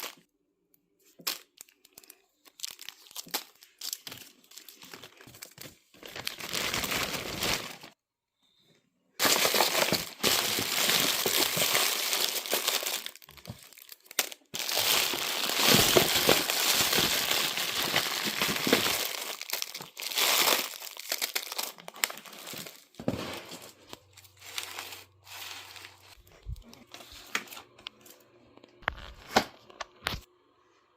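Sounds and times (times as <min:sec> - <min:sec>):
candy wrappers crinkling: 0:01.0 - 0:08.0, 0:09.2 - 0:27.8.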